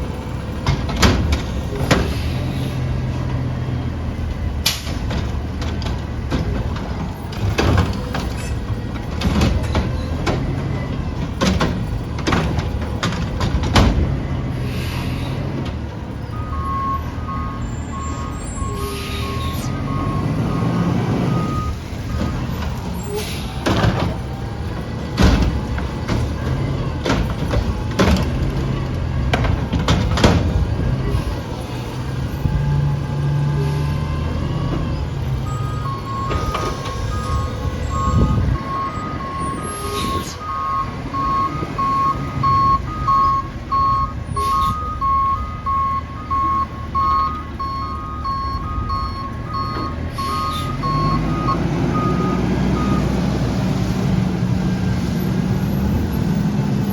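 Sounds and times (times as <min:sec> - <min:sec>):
garbage truck engine running: 0:00.0 - 0:56.9
backup alarm beeping: 0:16.3 - 0:23.2, 0:35.4 - 0:53.2.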